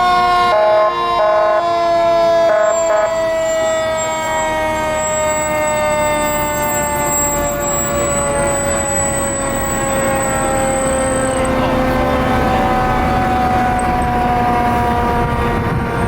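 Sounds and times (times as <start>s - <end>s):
fire truck siren wailing: 0.0s - 16.0s
truck rumbling past: 0.0s - 16.0s.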